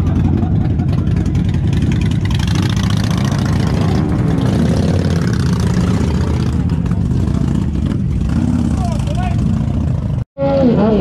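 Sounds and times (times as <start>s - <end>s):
motorcycle engine idling: 0.0s - 3.1s.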